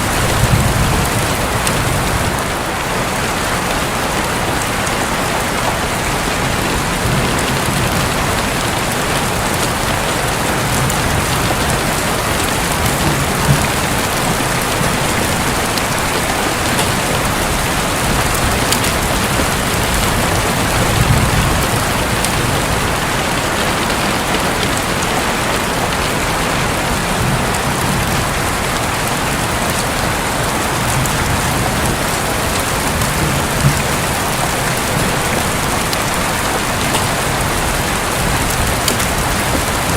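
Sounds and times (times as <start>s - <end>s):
distant thunder rumble: 0.0s - 3.7s, 5.4s - 39.9s
heavy rain drumming on roof: 0.0s - 39.9s.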